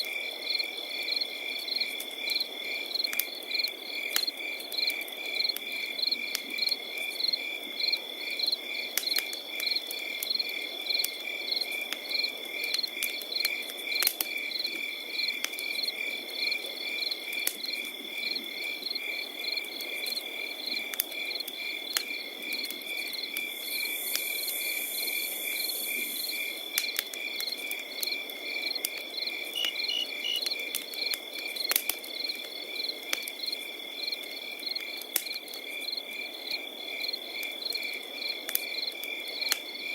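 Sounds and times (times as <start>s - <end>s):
crackling campfire: 0.0s - 39.9s
crickets chirping: 0.1s - 39.9s
sharp pops from fire: 9.0s - 9.8s, 11.0s - 14.4s, 26.7s - 33.4s, 34.9s - 35.6s, 38.5s - 39.7s
high insect trill: 28.6s - 30.6s.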